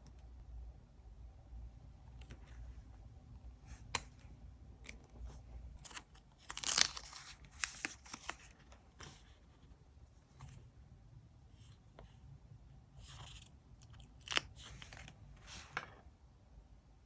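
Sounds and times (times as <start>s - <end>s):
paper ripping: 5.8s - 9.2s.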